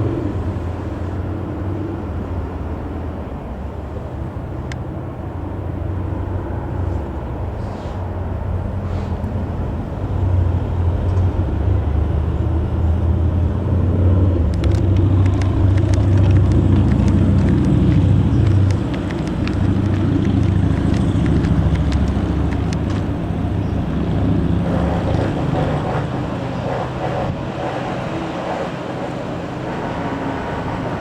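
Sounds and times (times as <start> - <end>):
small clicks: 14.4 - 23.1
airplane piston engine running: 14.5 - 31.0.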